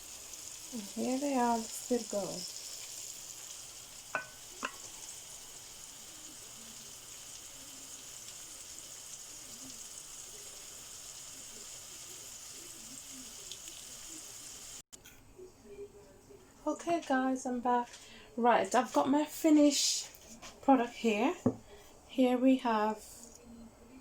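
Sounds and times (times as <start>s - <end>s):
chicken sizzling in hot oil: 0.0s - 14.9s.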